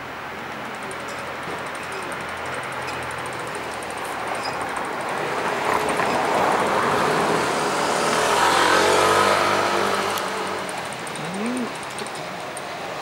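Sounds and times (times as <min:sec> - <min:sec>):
vehicle passing close by: 0:05.4 - 0:11.9.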